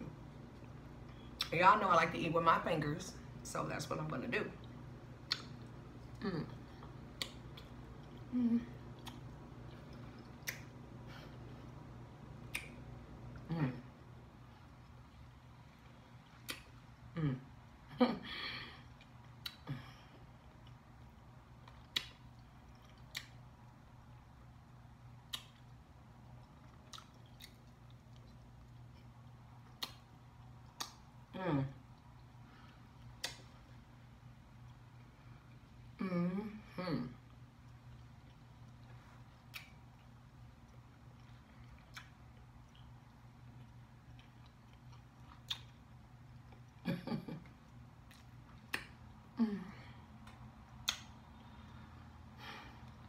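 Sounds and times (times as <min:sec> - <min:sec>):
person chewing meat: 0:04.7 - 0:13.5, 0:18.8 - 0:19.6, 0:20.2 - 0:36.0, 0:37.2 - 0:46.8, 0:47.5 - 0:49.3, 0:50.0 - 0:53.0
lip-smacking clicks: 0:05.2 - 0:05.7, 0:06.8 - 0:08.2, 0:09.0 - 0:10.8, 0:12.4 - 0:12.9, 0:16.2 - 0:16.8, 0:20.5 - 0:23.5, 0:25.2 - 0:31.1, 0:32.0 - 0:33.6, 0:37.6 - 0:45.8, 0:47.7 - 0:49.1, 0:50.2 - 0:51.6
voiced hums with mouth full: 0:06.1 - 0:07.4, 0:08.1 - 0:09.2, 0:13.4 - 0:14.0, 0:17.1 - 0:18.8, 0:36.0 - 0:37.3, 0:49.3 - 0:50.1.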